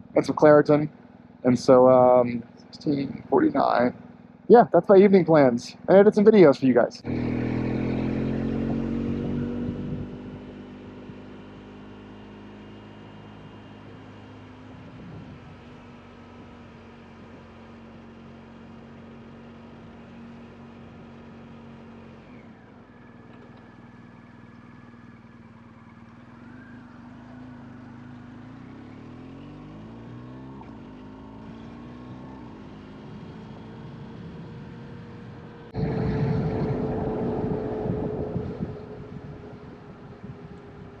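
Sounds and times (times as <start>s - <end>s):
vehicle engine running: 0.0s - 14.0s, 30.6s - 41.0s
loud rushing noise: 35.7s - 41.0s.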